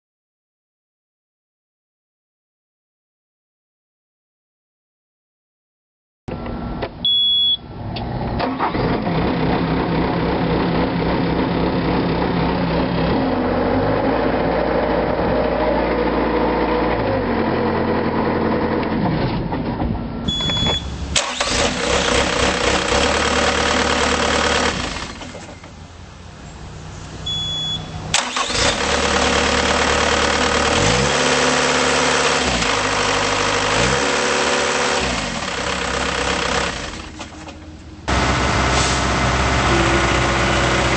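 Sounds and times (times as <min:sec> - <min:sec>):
short beep: 0:07.0 - 0:07.6, 0:20.3 - 0:21.0, 0:27.2 - 0:28.0
diesel engine revving: 0:07.8 - 0:19.1, 0:20.3 - 0:40.9.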